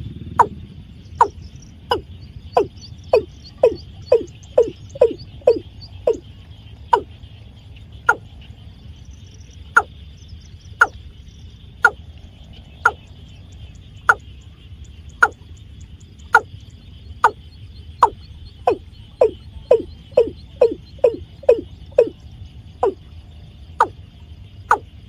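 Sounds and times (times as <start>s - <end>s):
bird calling hollow falling notes: 1.2s - 6.2s, 18.0s - 22.2s.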